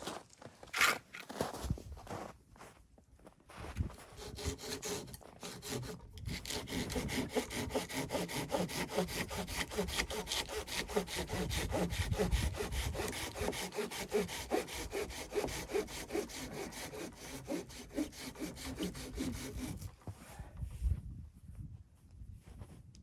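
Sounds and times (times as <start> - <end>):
hand saw cutting wood: 0.7 - 1.0, 4.1 - 19.9.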